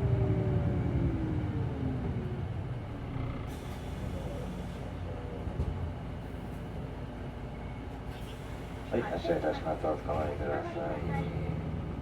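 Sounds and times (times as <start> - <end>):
bus drive whine: 0.0 - 12.0
air brakes hissing: 3.5 - 5.0, 8.1 - 8.9.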